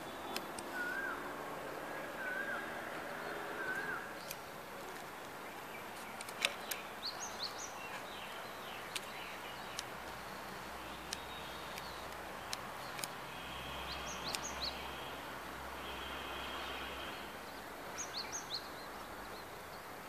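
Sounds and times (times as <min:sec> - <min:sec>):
bird wavering whistled call: 0:00.7 - 0:01.2, 0:02.1 - 0:02.7
sharp ticks: 0:08.9 - 0:13.2, 0:14.2 - 0:14.7.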